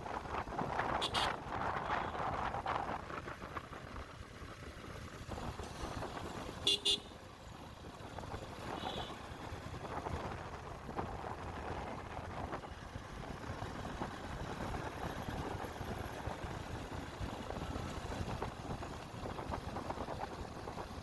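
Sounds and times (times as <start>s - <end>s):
wind buffeting microphone: 7.6s - 21.0s.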